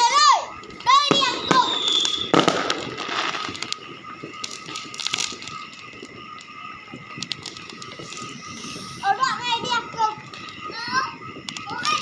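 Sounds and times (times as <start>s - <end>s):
firework hissing burst: 0.0s - 5.6s, 7.2s - 9.5s
faint steady high tone: 0.0s - 12.0s
firework pops and crackles: 0.0s - 12.0s.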